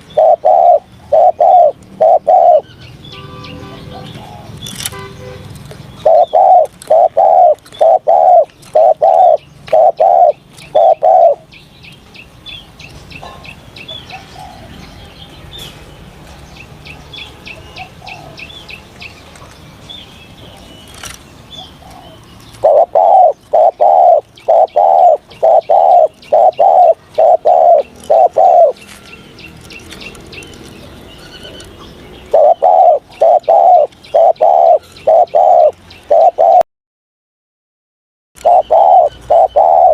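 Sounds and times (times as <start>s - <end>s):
dove cooing: 0.0s - 2.7s, 3.9s - 4.6s, 6.0s - 11.5s, 17.6s - 18.6s, 21.5s - 29.0s, 32.2s - 36.6s, 38.4s - 39.9s.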